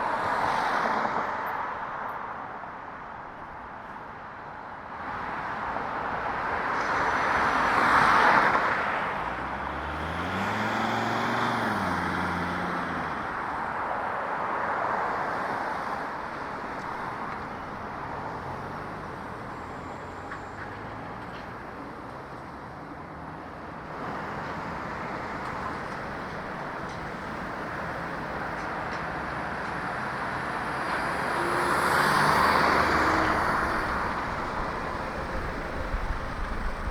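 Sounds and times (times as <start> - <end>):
road traffic passing: 0.0 - 36.9
vehicle passing loudly: 9.6 - 13.1, 30.5 - 36.9.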